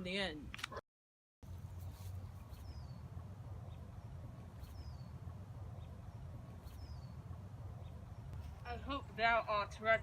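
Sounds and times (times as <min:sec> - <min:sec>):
bird chirping: 0:01.4 - 0:09.4.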